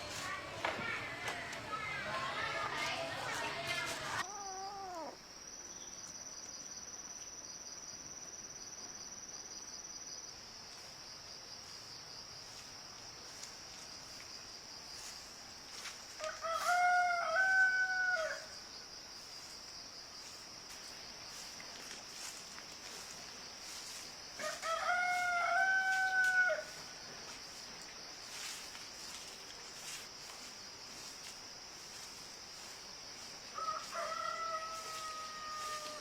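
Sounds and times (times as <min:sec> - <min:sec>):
rooster crowing: 0:04.2 - 0:05.2, 0:16.2 - 0:18.6, 0:24.4 - 0:26.8, 0:33.5 - 0:36.0.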